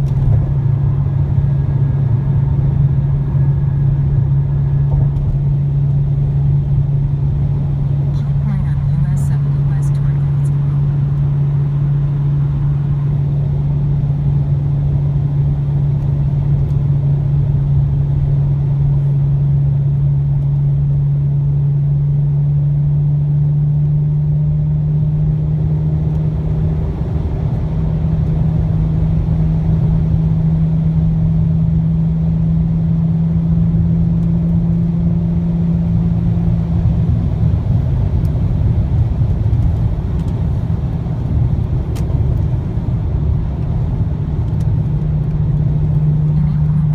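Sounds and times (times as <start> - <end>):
road noise: 0.0 - 21.0, 23.4 - 46.9
car exhaust drone: 0.0 - 46.9.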